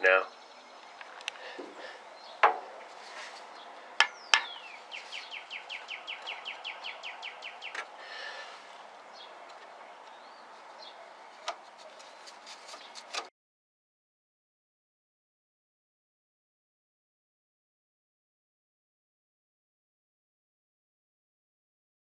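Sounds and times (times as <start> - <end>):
songbird trilling: 3.5 - 7.9.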